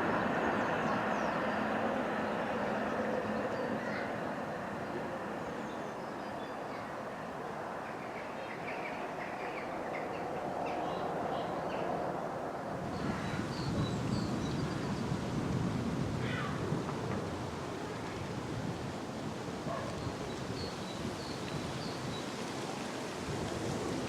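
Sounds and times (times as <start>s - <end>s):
train rolling: 0.0s - 5.6s.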